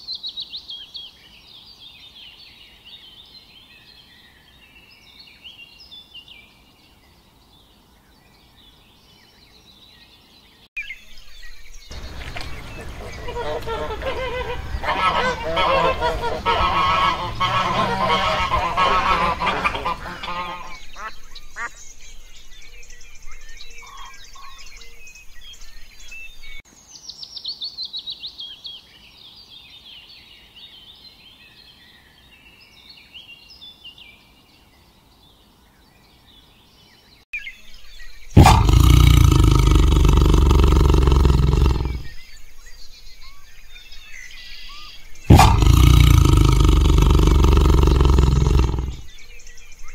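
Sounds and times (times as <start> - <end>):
swan honking: 11.9 - 20.8
tiger roaring: 12.0 - 20.4, 38.4 - 42.1, 45.3 - 49.2.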